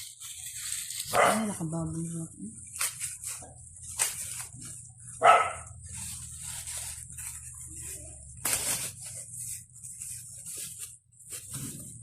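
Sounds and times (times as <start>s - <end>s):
dog barking: 1.1s - 1.6s, 5.2s - 5.8s.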